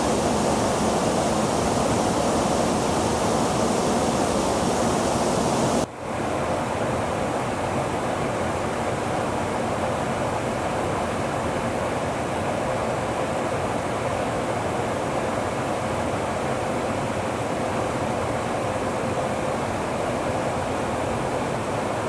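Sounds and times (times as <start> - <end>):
jet engine rushing: 0.0 - 5.9.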